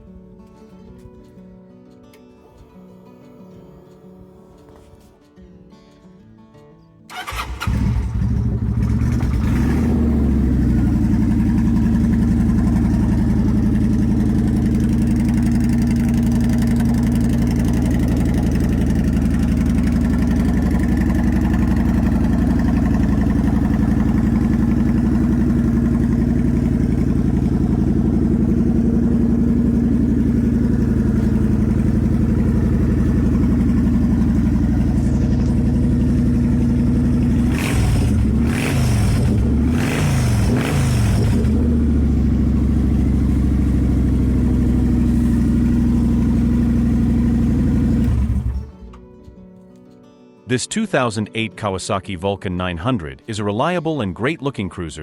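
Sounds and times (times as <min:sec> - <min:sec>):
motorcycle engine idling: 0:07.1 - 0:48.9
motorcycle engine starting: 0:07.1 - 0:49.5.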